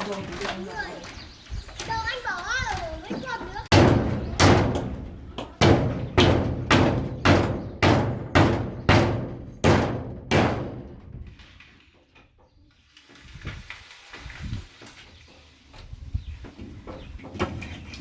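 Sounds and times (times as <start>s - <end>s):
soft thuds: 2.8s - 11.4s
heavy blows on wood: 3.0s - 11.4s.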